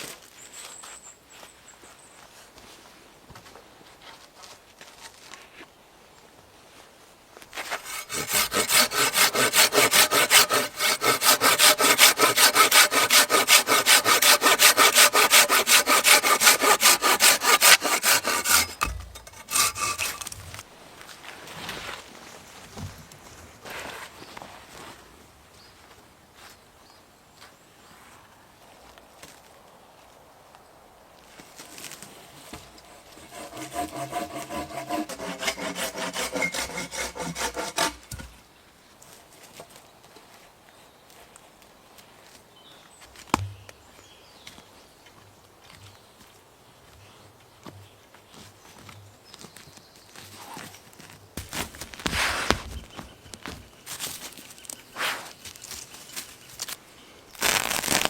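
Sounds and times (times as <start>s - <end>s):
hand saw cutting wood: 7.6s - 20.6s, 32.8s - 38.4s.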